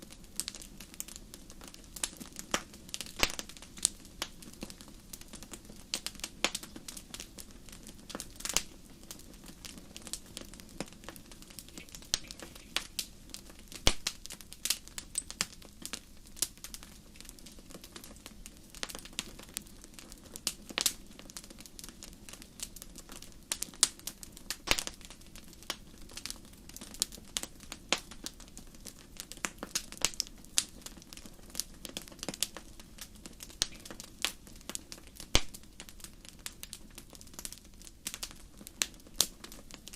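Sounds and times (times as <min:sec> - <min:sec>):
fire hissing: 0:00.0 - 0:28.4
wood fire crackling and popping: 0:00.0 - 0:39.9.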